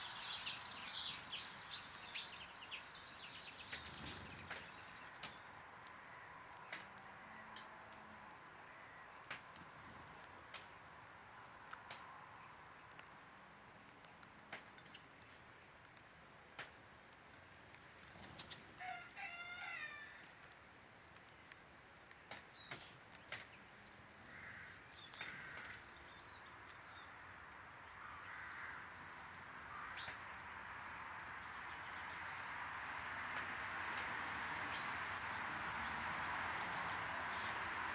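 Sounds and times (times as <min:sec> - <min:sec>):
sharp clicks: 0:09.1 - 0:18.6, 0:20.2 - 0:27.1, 0:33.3 - 0:37.9
wing flutters: 0:18.0 - 0:18.8.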